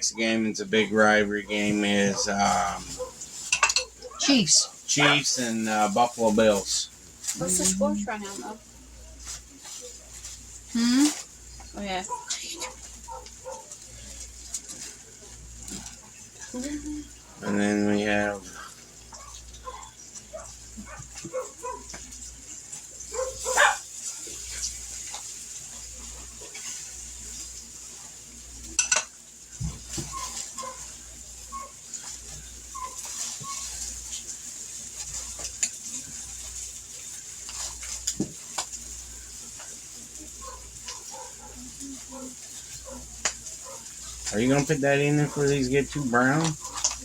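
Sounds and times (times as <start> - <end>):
utensils clinking against pan: 2.3 - 4.3, 28.6 - 31.0
chicken sizzling in oil: 12.9 - 47.0.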